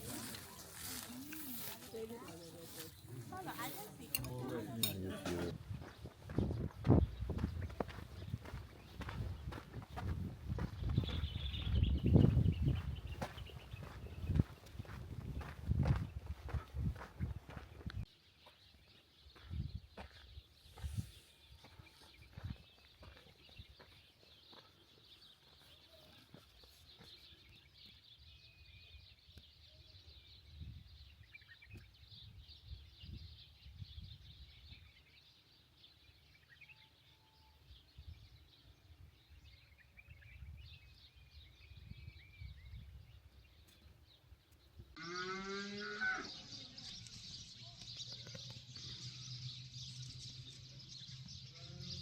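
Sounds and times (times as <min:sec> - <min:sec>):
faint bird chirps: 0:25.4 - 0:43.9
cow mooing: 0:45.0 - 0:46.4.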